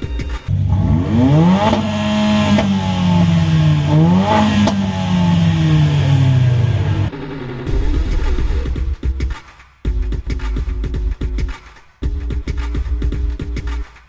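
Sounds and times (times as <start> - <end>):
car engine revving: 0.4 - 7.7
exhaust cracks: 0.4 - 7.7.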